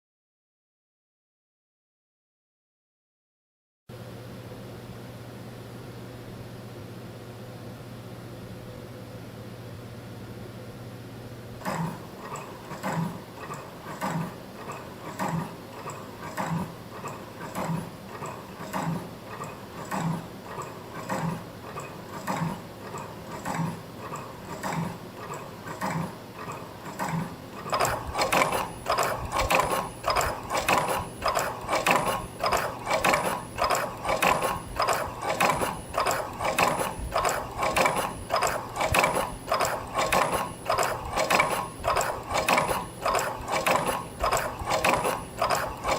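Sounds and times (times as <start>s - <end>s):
machine clicking and clattering: 11.6s - 45.9s.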